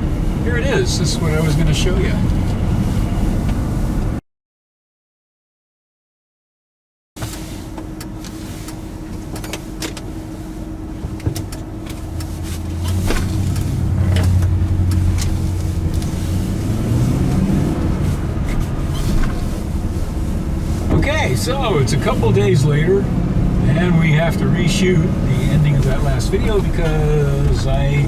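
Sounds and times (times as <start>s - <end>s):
truck engine running: 0.0s - 4.2s, 7.3s - 28.0s
rattles and knocks in cab: 10.7s - 17.2s, 17.8s - 22.0s.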